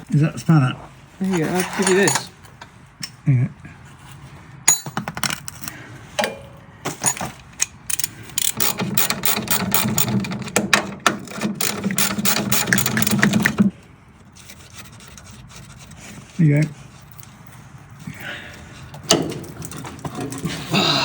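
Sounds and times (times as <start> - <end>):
socket ratchet clicking: 7.9 - 10.2, 11.6 - 13.6.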